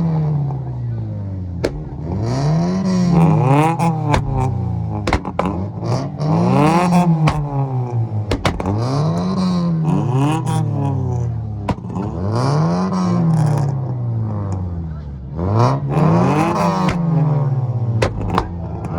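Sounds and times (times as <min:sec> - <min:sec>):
sharp exhaust cracks: 0:01.6 - 0:03.4, 0:04.0 - 0:05.6, 0:07.2 - 0:09.0.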